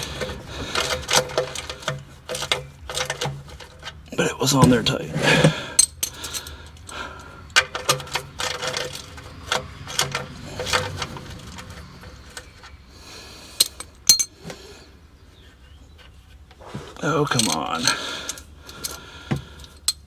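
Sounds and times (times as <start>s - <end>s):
wrench clinking on metal bolt: 0.0s - 4.9s, 5.8s - 12.8s, 13.6s - 14.4s, 17.2s - 20.0s.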